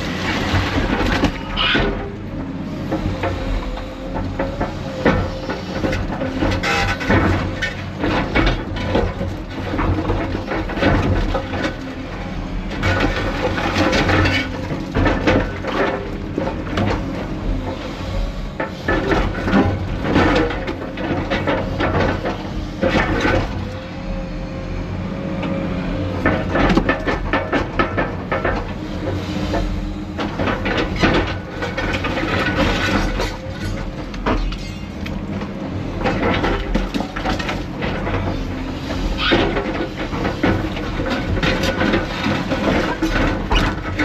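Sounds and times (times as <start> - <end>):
diesel engine under load: 0.0 - 44.0
concrete chunks clattering: 30.4 - 35.3.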